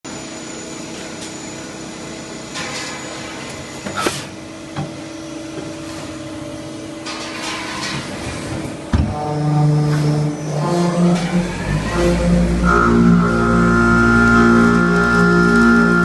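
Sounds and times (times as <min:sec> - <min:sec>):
lathe machine hum: 0:10.3 - 0:16.0.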